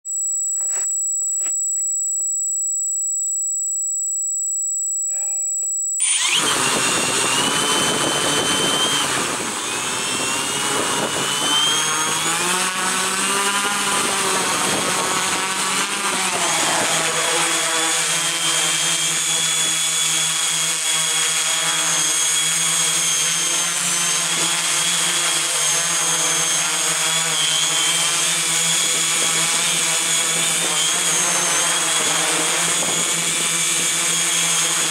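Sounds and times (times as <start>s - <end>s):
steady high-pitched tone: 0.1s - 6.4s
drone motors whining: 6.0s - 34.9s.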